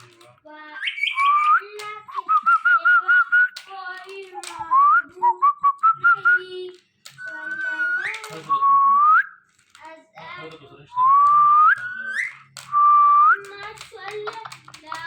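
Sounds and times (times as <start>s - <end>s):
parakeet whistling: 0.7s - 3.3s, 7.2s - 9.4s, 11.0s - 13.4s.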